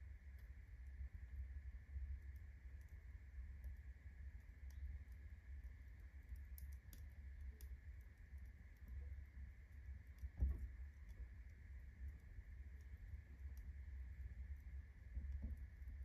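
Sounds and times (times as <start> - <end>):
low fire rumble: 0.0 - 16.0
soft thump: 10.4 - 10.7.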